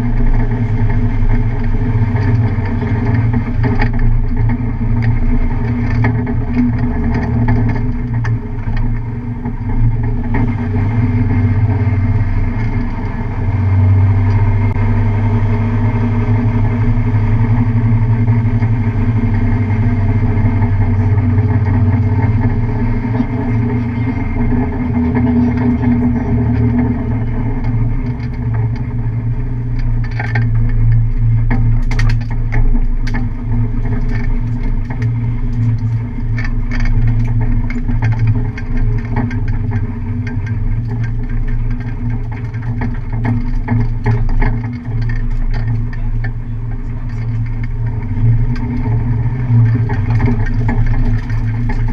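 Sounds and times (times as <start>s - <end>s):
car engine running: 0.0s - 51.9s
short clicks and rattles: 29.7s - 51.9s.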